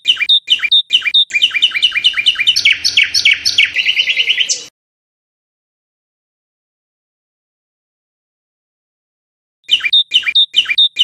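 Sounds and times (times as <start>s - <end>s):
songbird whistles and trill: 0.0s - 4.7s, 9.7s - 11.0s.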